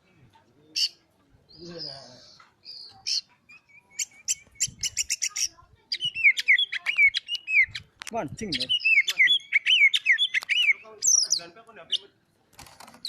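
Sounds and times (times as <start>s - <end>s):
bird singing clicking and whistled notes: 2.3s - 12.0s.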